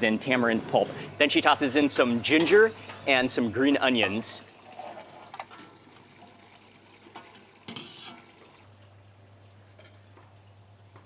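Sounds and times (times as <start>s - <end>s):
utensil scraping pot: 7.1s - 8.4s.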